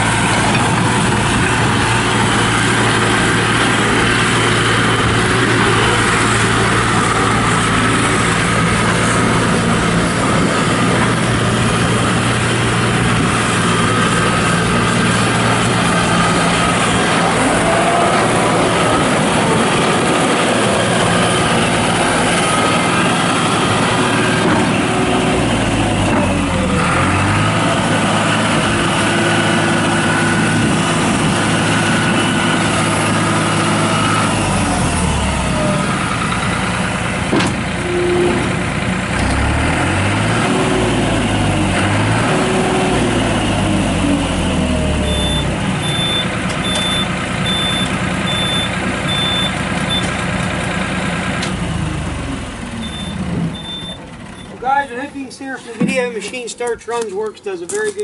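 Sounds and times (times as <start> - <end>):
loader diesel engine running: 0.0 - 58.0
backup alarm beeping: 45.0 - 50.1, 52.8 - 54.5.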